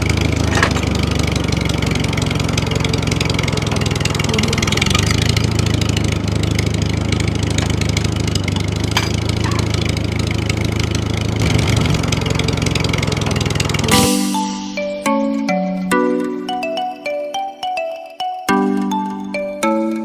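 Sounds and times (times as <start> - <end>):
motor droning: 0.0 - 14.8
chiming music notes: 3.9 - 5.6, 13.9 - 20.0.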